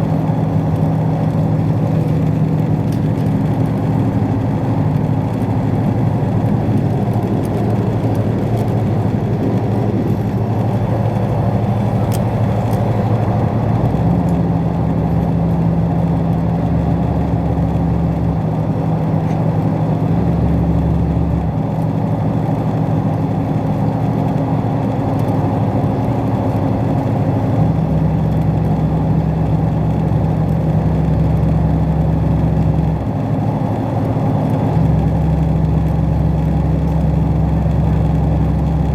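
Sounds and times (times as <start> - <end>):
train running rumble: 0.0 - 21.7
low engine drone: 0.0 - 38.9.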